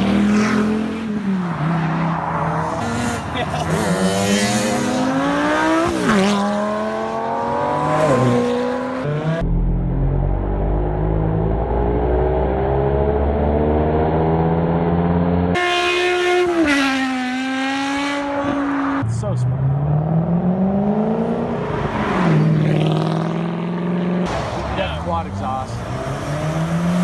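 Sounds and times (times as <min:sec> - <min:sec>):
car engine revving with upshifts: 0:00.0 - 0:09.5, 0:10.6 - 0:27.0.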